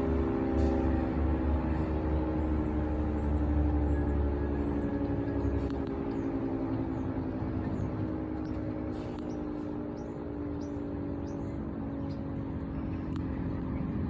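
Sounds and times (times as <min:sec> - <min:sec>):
warning siren multi-note tone: 0:00.0 - 0:14.0.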